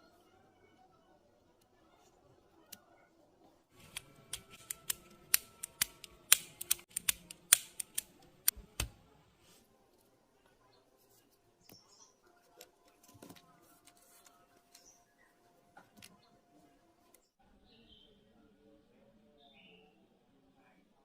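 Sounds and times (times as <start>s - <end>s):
small hard parts clicking: 3.8s - 8.1s.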